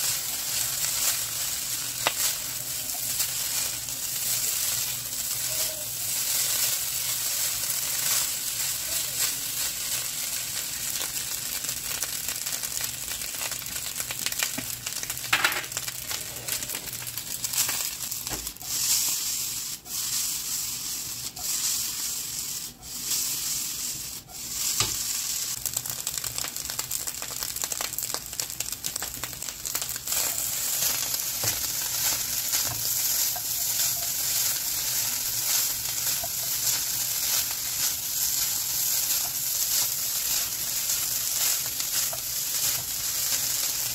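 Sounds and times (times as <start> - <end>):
rice sizzling in a wok: 0.0 - 43.9
spatula scraping and tapping pan: 24.6 - 25.1, 30.1 - 43.9.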